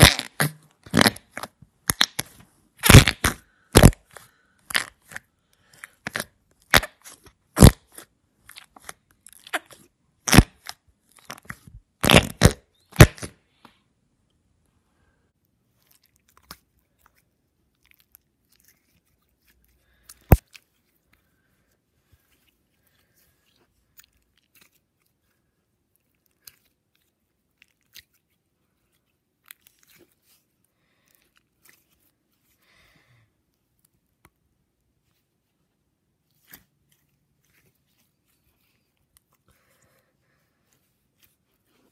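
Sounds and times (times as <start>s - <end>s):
slime popping and crackling: 0.0s - 13.3s.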